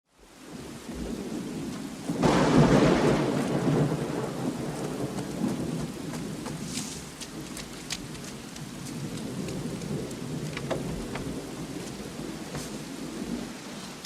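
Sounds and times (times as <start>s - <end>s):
heavy rain: 0.1s - 14.0s
rolling thunder: 0.4s - 13.7s
loud thunderclap: 0.6s - 6.7s, 8.8s - 13.5s.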